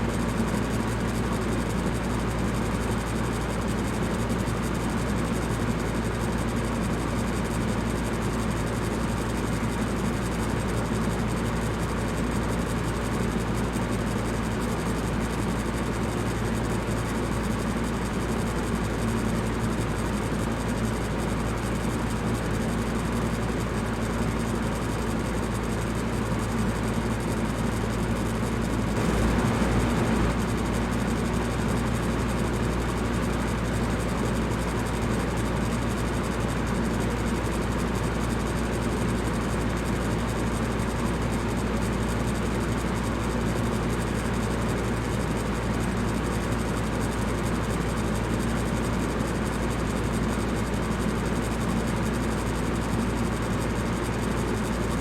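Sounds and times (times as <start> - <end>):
low motor hum: 26.6 - 33.6
fan air rushing: 27.9 - 33.0.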